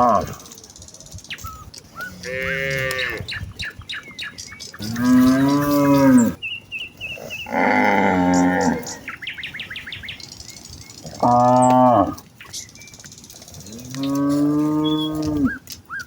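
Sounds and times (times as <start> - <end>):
cows mooing: 0.0 - 0.4, 1.9 - 3.4, 4.8 - 6.4, 7.1 - 9.4, 11.0 - 12.4, 13.4 - 15.7.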